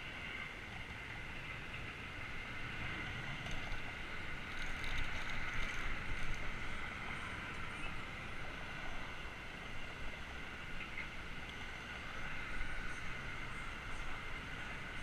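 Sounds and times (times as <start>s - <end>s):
wind and tyre noise: 0.0s - 15.0s
faint light ticks: 4.5s - 6.7s, 10.8s - 12.0s.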